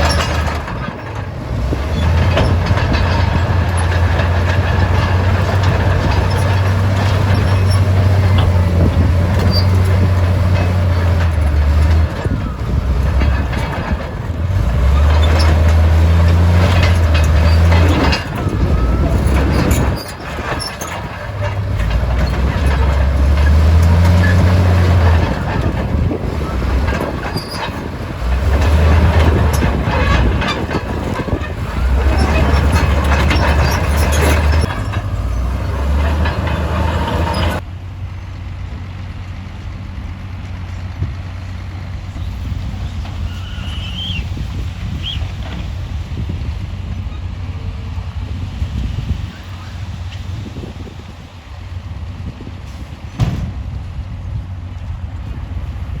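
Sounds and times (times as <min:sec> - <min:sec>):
steel tracks clanking: 0:00.0 - 0:39.0, 0:40.5 - 0:54.2
bulldozer diesel engine surging: 0:00.0 - 0:56.0
rock grinding: 0:01.6 - 0:37.6.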